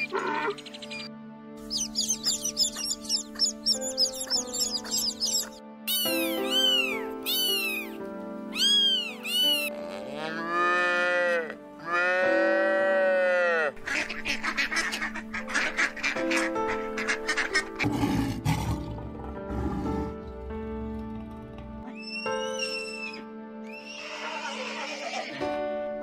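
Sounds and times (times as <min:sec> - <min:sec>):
background music: 0:00.0 - 0:26.0
short high animal calls: 0:05.9 - 0:07.9, 0:08.5 - 0:09.7
cow mooing: 0:09.9 - 0:13.7
duck quacking: 0:13.8 - 0:17.8.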